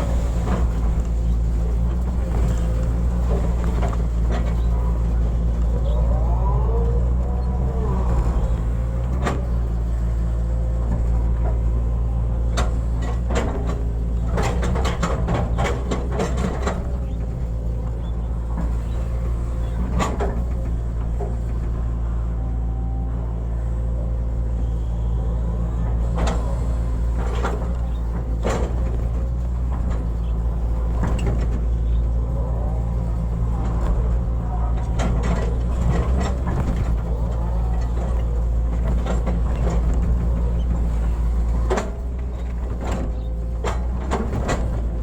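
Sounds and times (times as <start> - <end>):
excavator diesel engine: 0.0 - 45.0
digging clanks and knocks: 7.1 - 21.8, 25.9 - 45.0.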